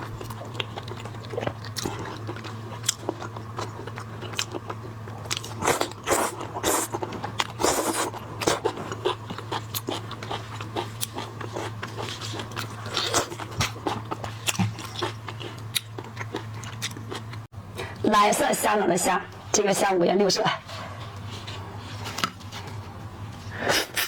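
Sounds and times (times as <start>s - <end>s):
crunchy chewing: 0.0s - 17.5s
steady low hum: 0.0s - 24.0s.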